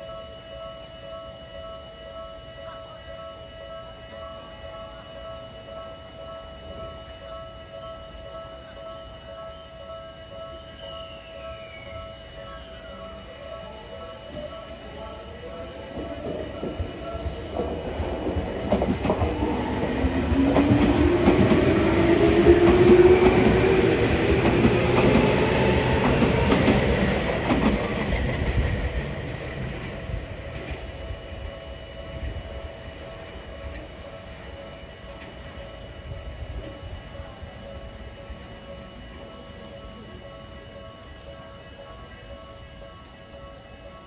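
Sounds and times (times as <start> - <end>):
electric train passing: 0.0 - 44.0
train motor whine: 11.1 - 41.3.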